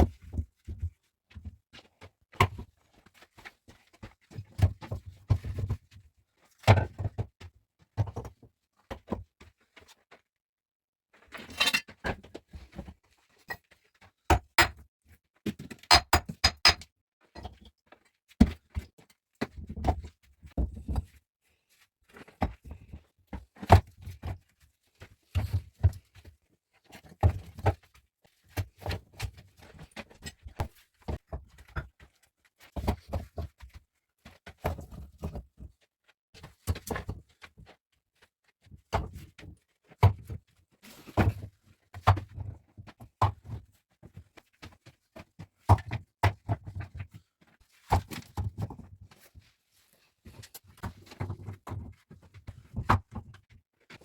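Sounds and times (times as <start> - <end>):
hard objects knocking: 15.9 - 16.8.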